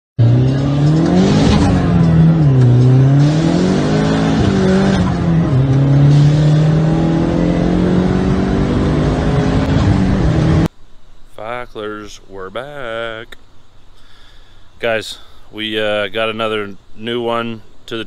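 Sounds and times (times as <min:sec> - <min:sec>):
car engine revving: 0:00.2 - 0:10.7.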